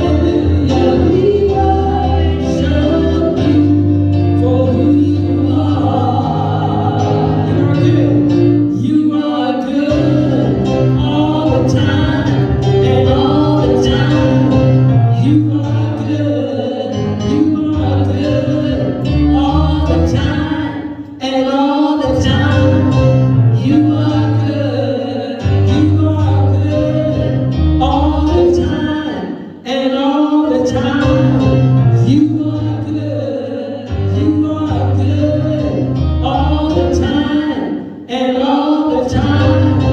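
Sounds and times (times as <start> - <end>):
gospel choir singing: 0.0 - 39.9.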